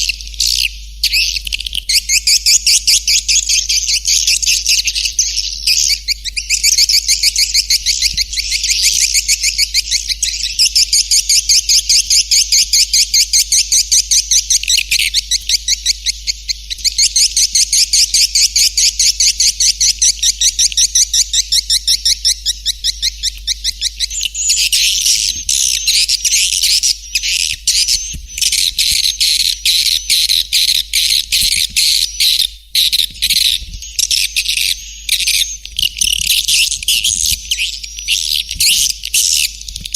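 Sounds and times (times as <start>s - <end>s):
steady low hum: 0.0s - 39.9s
swiftlet twittering chirps: 0.0s - 39.9s.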